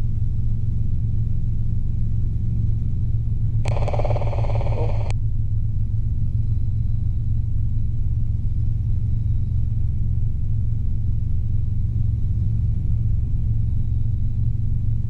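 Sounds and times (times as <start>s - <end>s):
helicopter drone in cabin: 3.6s - 5.1s
crackly radio burst: 3.7s - 5.1s.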